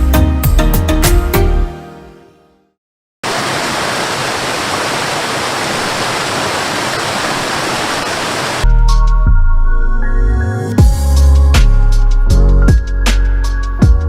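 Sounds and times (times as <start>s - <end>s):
music: 0.0s - 2.8s, 8.6s - 14.0s.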